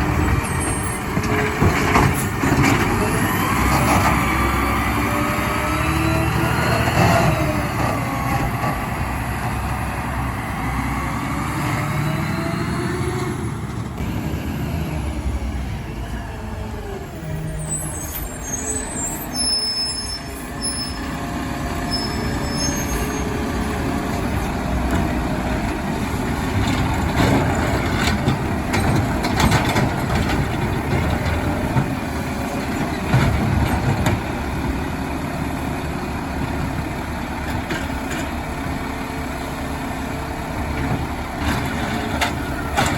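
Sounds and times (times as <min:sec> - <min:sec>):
garbage truck engine running: 0:20.3 - 0:42.9.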